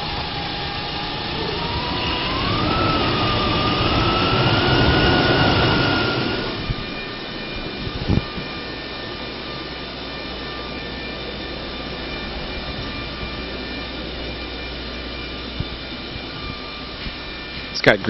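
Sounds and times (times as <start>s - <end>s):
rising engine whine: 0.0s - 18.0s
truck engine revving and idling: 0.8s - 6.8s.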